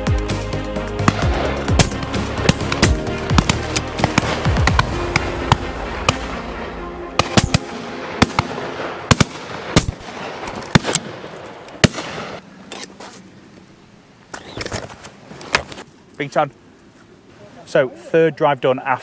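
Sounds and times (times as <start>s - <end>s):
background music: 0.0s - 10.0s
shotguns firing: 1.0s - 12.4s.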